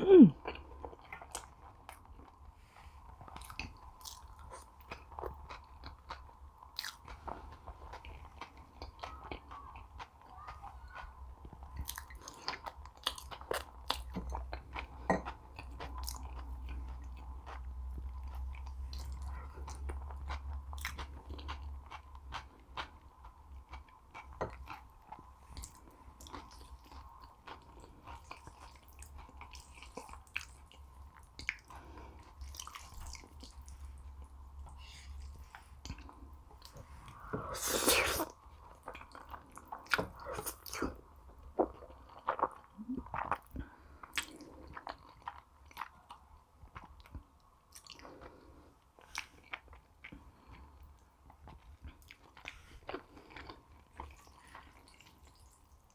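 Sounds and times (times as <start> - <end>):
chewing and biting food: 0.4 - 37.2, 37.9 - 55.9.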